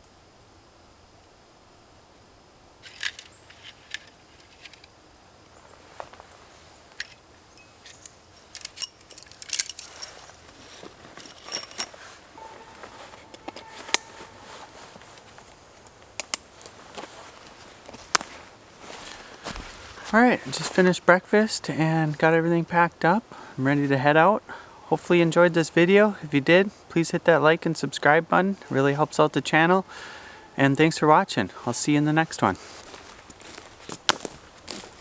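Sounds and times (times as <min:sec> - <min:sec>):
faint outdoor background: 0:00.0 - 0:35.0
camping gear clicks and clinks: 0:02.8 - 0:05.0, 0:06.9 - 0:21.0, 0:32.4 - 0:35.0.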